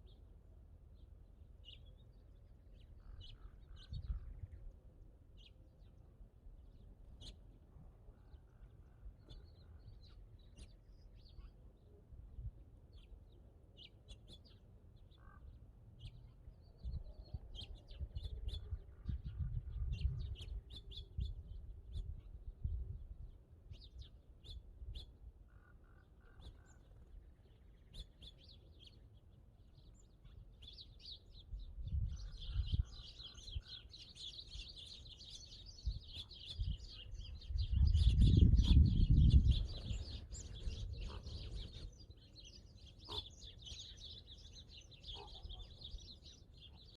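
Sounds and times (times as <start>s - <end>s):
small birds chirping: 0.0s - 47.0s
wind rumbling on microphone: 3.2s - 4.8s, 16.8s - 24.1s, 31.4s - 42.5s.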